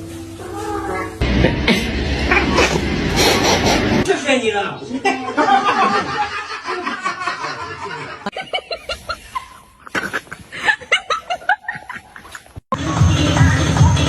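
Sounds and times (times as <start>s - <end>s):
person laughing: 1.2s - 4.0s, 5.1s - 12.6s
electronic dance music: 12.7s - 14.0s.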